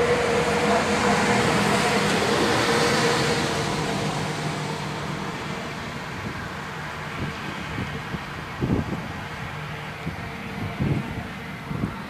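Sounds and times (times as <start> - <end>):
passing road vehicle: 0.0 - 12.0.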